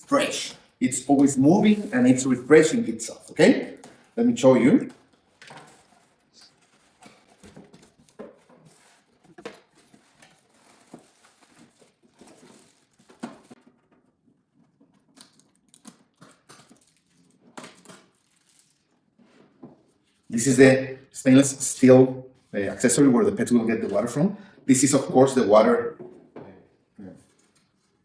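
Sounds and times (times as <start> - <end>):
packaging rustling and crinkling: 5.0 - 13.8, 14.8 - 19.4.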